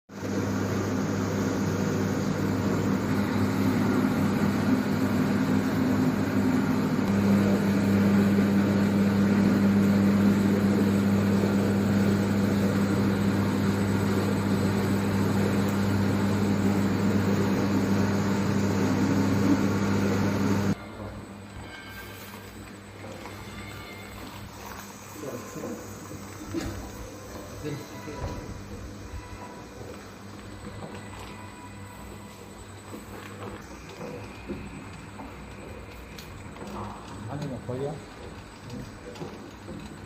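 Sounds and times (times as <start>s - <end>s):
electric motor humming: 0.2s - 20.8s.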